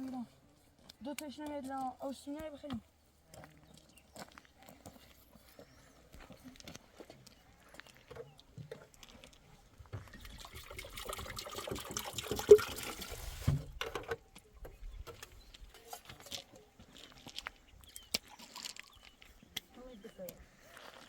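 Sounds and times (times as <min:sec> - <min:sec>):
liquid pouring: 0:10.0 - 0:13.5
small clicks and rustles: 0:13.8 - 0:21.0.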